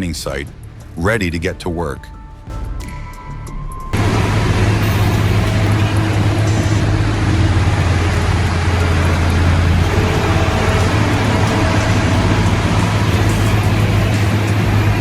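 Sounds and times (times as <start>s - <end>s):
road noise: 3.8s - 15.0s
heavy vehicle engine running: 3.9s - 15.0s.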